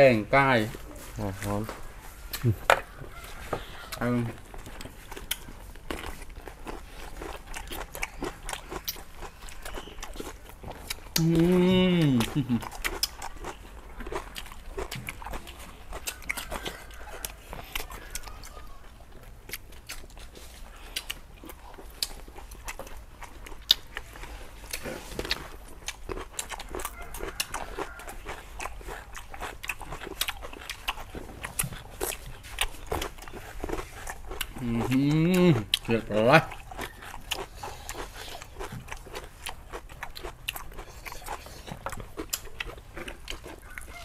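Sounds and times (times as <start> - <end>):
people chewing and crunching food: 0.0 - 44.0
mouth clicks and smacks: 2.3 - 2.9, 7.4 - 16.7.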